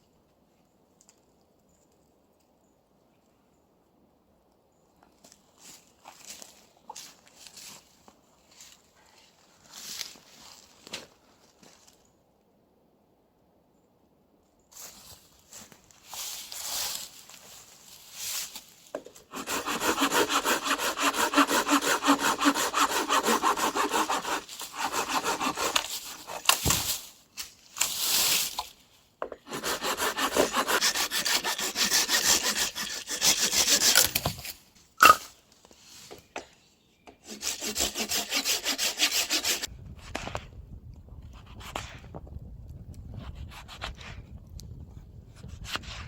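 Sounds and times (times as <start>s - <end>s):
hand saw cutting wood: 19.2s - 26.9s, 29.4s - 35.2s, 37.2s - 39.7s.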